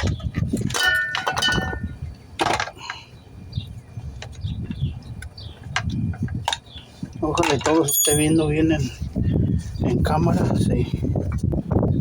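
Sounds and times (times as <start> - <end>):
metal hand tools clinking: 7.6 - 8.6
short ringing clink: 7.8 - 8.6.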